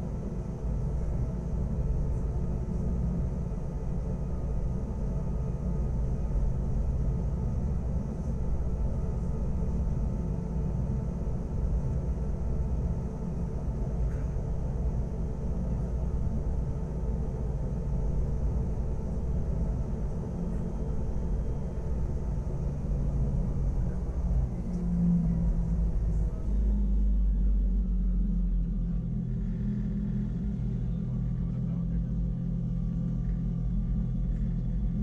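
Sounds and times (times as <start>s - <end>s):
electric train rumbling: 10.6s - 35.0s.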